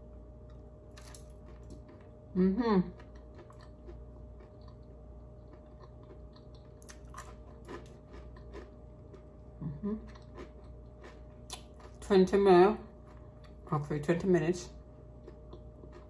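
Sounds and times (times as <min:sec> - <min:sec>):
person chewing: 0:00.9 - 0:02.2, 0:02.9 - 0:12.0, 0:15.1 - 0:16.0
person humming: 0:09.6 - 0:10.1.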